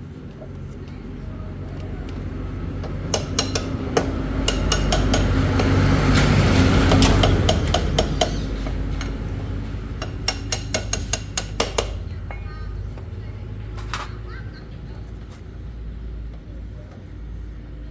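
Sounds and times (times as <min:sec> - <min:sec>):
sharp metallic taps: 0:02.8 - 0:05.7, 0:10.0 - 0:13.1.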